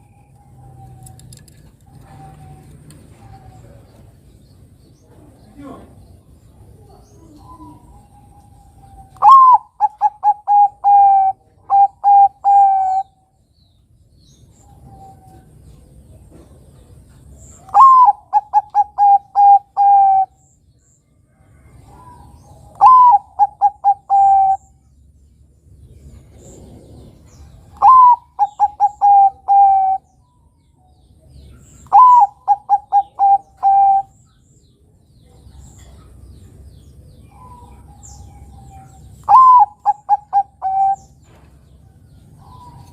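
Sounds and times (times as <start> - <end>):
dove cooing: 0.4 - 4.2, 6.8 - 13.2, 17.6 - 20.4, 21.7 - 24.8, 26.1 - 30.2, 31.8 - 34.2, 37.2 - 41.3.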